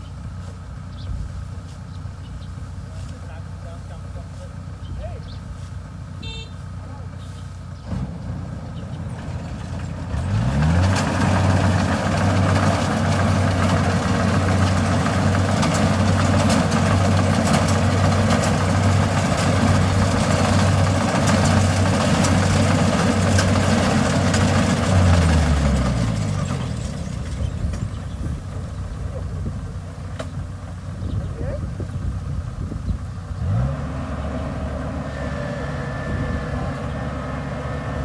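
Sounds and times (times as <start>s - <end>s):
diesel engine revving: 0.0s - 38.0s.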